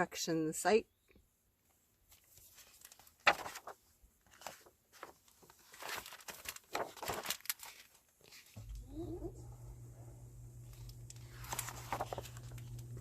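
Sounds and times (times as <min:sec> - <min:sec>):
rustling handling noise: 0:01.6 - 0:08.8, 0:10.7 - 0:13.0.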